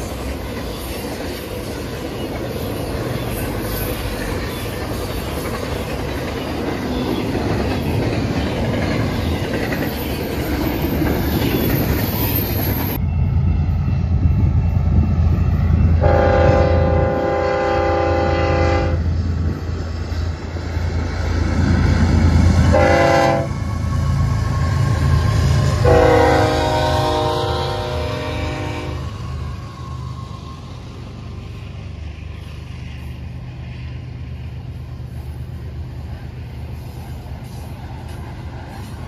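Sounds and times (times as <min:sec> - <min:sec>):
diesel locomotive engine rumble: 0:00.0 - 0:39.0
train rolling past: 0:00.0 - 0:39.0
train air horn blasts: 0:16.0 - 0:19.0, 0:22.7 - 0:23.6, 0:25.7 - 0:29.2.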